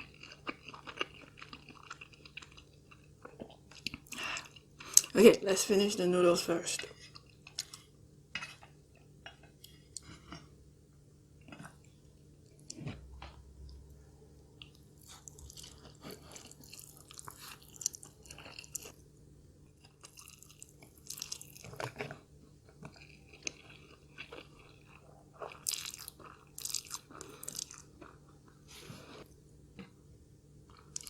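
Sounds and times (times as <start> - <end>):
chewing noodles: 0.0 - 5.1, 14.6 - 19.0, 19.8 - 30.0, 30.7 - 31.0.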